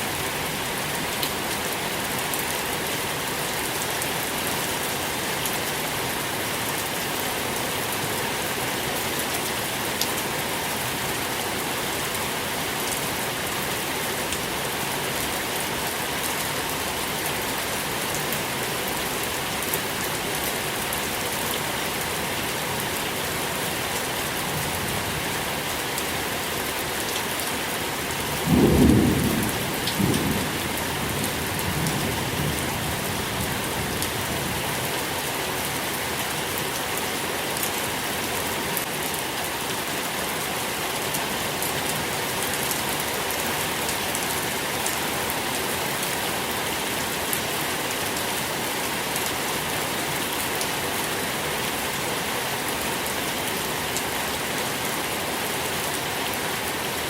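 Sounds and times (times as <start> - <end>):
steady rain: 0.0 - 57.0
thunder rumbling: 28.4 - 33.0.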